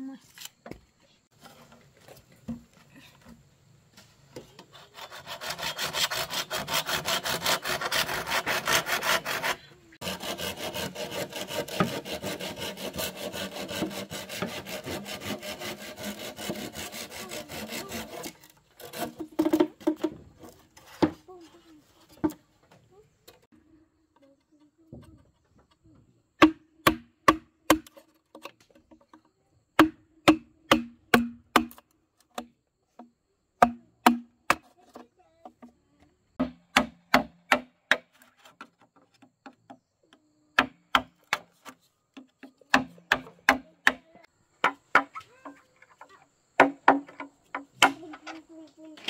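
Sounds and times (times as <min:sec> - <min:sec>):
tool striking wood: 0:26.4 - 0:28.0, 0:29.8 - 0:34.7, 0:36.4 - 0:38.2, 0:40.6 - 0:45.6, 0:46.6 - 0:48.1.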